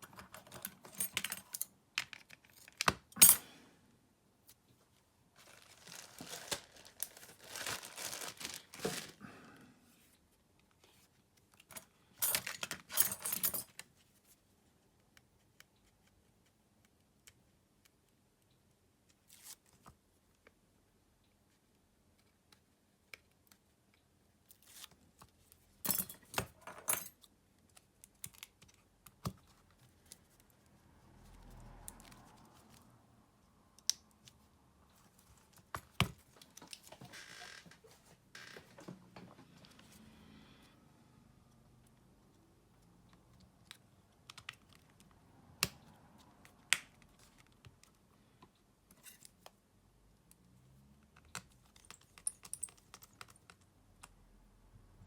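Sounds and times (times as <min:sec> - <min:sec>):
small tools and plastic parts clicking: 0:25.9 - 0:30.5, 0:51.0 - 0:54.2.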